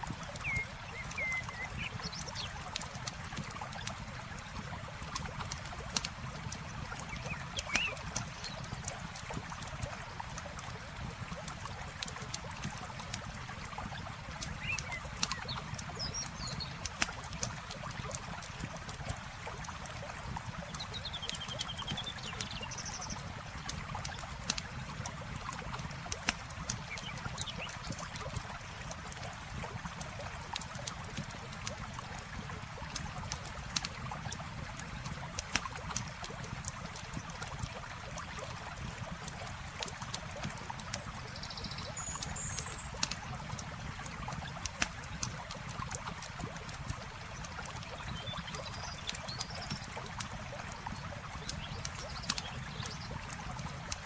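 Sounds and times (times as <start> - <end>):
campfire crackling and popping: 0.0 - 41.4, 42.2 - 54.0
flowing water: 0.0 - 54.0
bird chirps: 0.4 - 2.0, 7.2 - 8.0.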